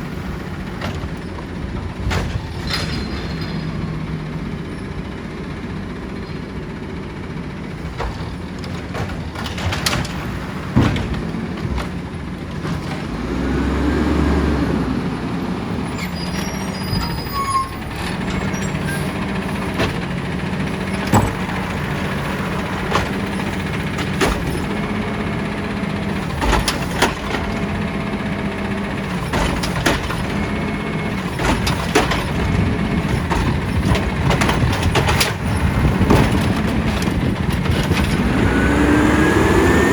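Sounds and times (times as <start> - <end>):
knocks and clanks of metal: 0.5 - 5.1, 7.8 - 13.4, 16.7 - 25.2, 26.0 - 27.8, 28.9 - 39.1
diesel engine revving: 9.2 - 39.9.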